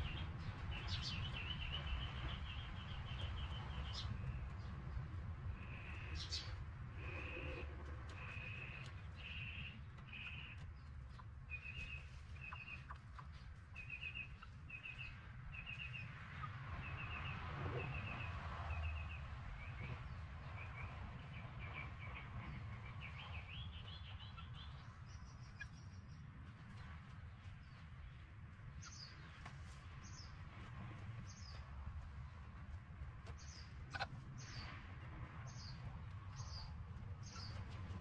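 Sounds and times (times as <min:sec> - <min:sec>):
bird chirping: 0:00.0 - 0:04.8, 0:05.6 - 0:28.2, 0:35.5 - 0:37.8.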